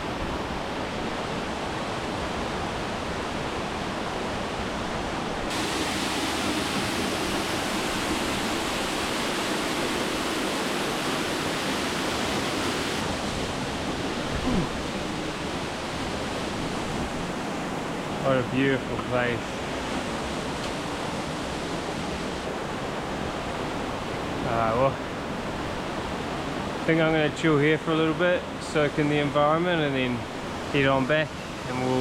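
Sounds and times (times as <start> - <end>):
waterfall rushing: 5.4 - 18.2.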